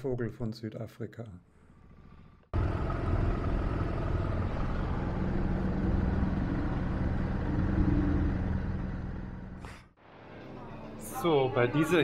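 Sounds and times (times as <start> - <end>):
motorcycle engine drone: 1.7 - 9.9
road and traffic noise: 2.6 - 9.8.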